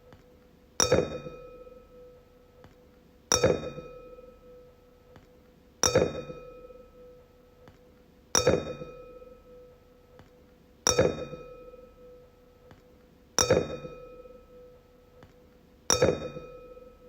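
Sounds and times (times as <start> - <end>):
wine glass clinking and ringing: 15.9 - 17.0.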